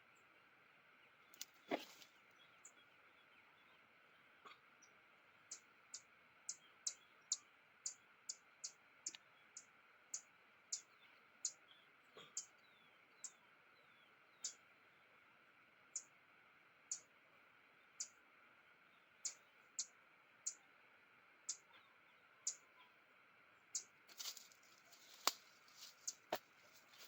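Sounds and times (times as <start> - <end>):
small bird chirping: 4.4 - 15.0, 15.9 - 16.2, 16.9 - 17.2, 17.8 - 18.2, 18.8 - 20.8, 21.4 - 27.0.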